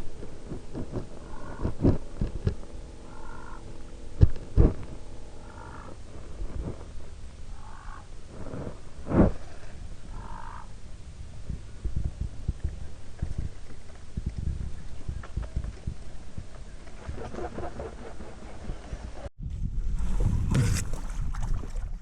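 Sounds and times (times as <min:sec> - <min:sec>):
sharp thumps: 0:00.0 - 0:07.6
wind rumbling on microphone: 0:00.0 - 0:22.0
nasal waterfowl calls: 0:01.0 - 0:02.2, 0:03.0 - 0:06.0, 0:07.5 - 0:08.1, 0:10.1 - 0:10.8.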